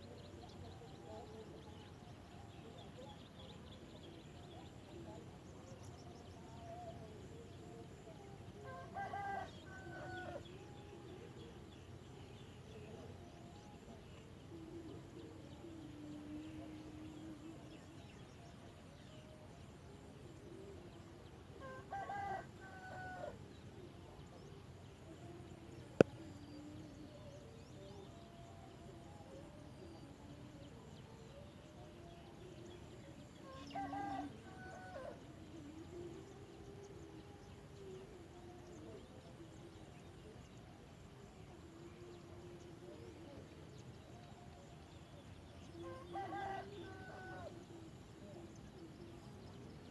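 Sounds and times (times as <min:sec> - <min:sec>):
rooster crowing: 0:45.8 - 0:47.5.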